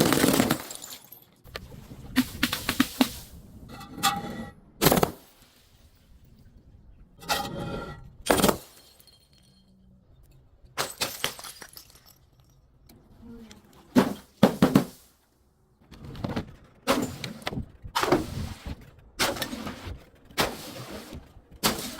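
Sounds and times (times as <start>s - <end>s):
glass breaking and crunching: 0.0s - 1.4s, 8.2s - 9.9s, 10.7s - 12.7s.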